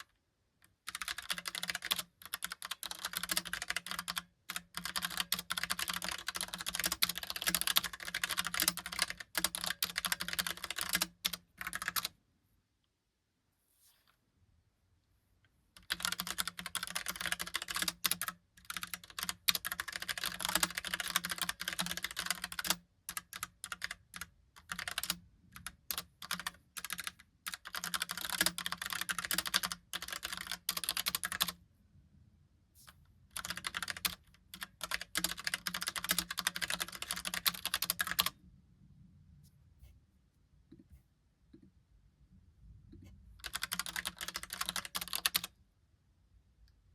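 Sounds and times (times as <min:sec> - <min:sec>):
mechanical keyboard typing: 0:00.8 - 0:12.1, 0:15.8 - 0:31.6, 0:33.3 - 0:38.4, 0:43.4 - 0:45.5.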